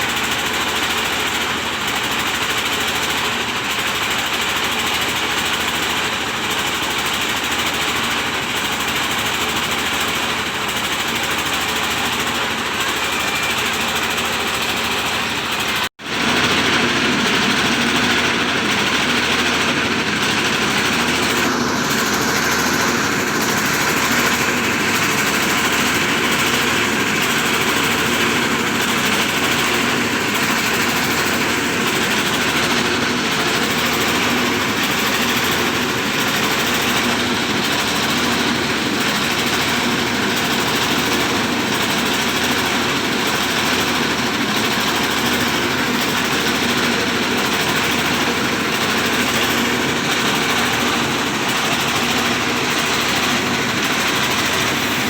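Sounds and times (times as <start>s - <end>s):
diesel engine running: 0.0s - 55.0s
rice milling machine running: 0.0s - 55.0s.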